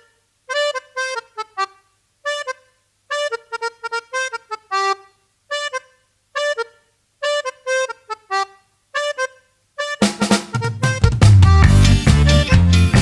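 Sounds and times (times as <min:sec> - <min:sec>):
accordion playing detached chords: 0:00.0 - 0:13.0.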